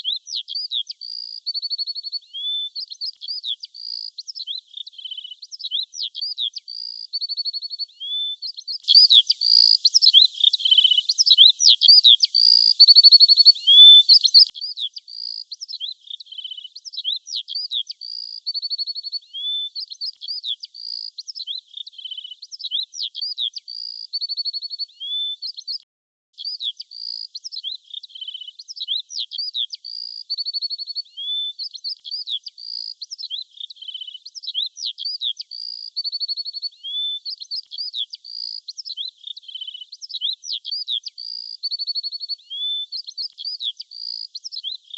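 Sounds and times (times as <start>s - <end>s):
songbird singing: 0.0s - 22.8s.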